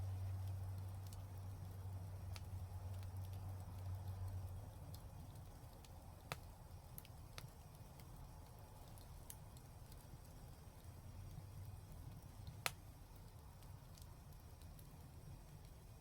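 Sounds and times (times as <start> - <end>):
fireplace fire crackling: 0.0 - 16.0
fire pop: 12.2 - 12.9.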